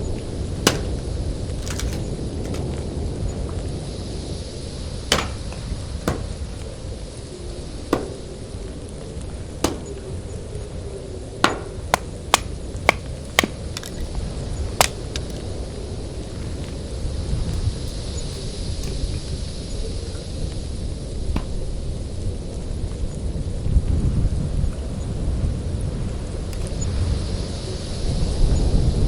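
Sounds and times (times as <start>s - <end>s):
sharp knocks: 0.6s - 2.6s, 5.1s - 6.8s, 7.9s - 8.6s, 9.6s - 10.2s, 11.4s - 14.1s, 14.7s - 15.4s.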